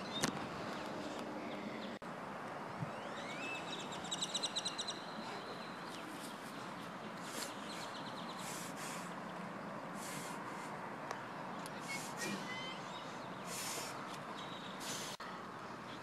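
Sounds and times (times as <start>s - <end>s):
outdoor background noise: 0.0s - 16.0s
bird singing a trill: 2.9s - 6.5s, 11.5s - 13.5s, 14.3s - 14.8s.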